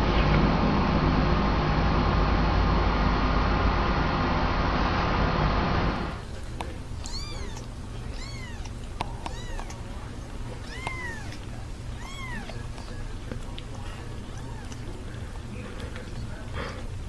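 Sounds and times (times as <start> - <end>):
cat meowing: 7.0 - 9.9, 10.6 - 13.1, 14.2 - 14.9.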